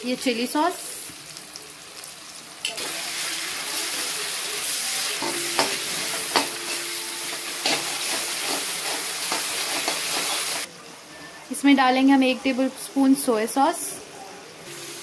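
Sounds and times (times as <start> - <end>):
vegetables sizzling in hot oil: 0.0 - 10.7, 14.7 - 15.0
metal spoon scraping pan: 5.2 - 10.7.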